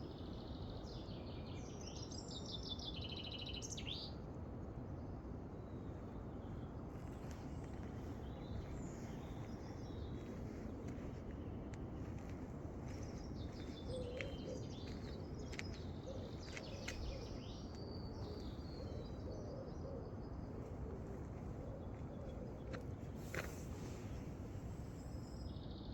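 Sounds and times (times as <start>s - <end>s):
small birds chirping: 7.0s - 19.3s.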